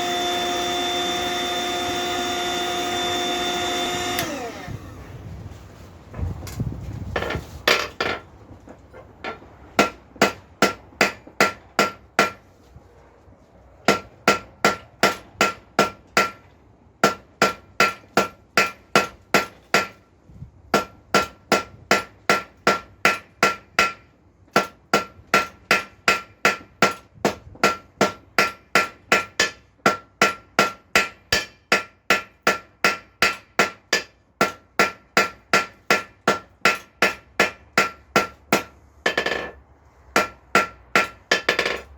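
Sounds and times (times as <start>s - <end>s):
hammer striking steel on anvil: 9.8s - 12.4s, 24.6s - 39.6s, 40.2s - 41.9s.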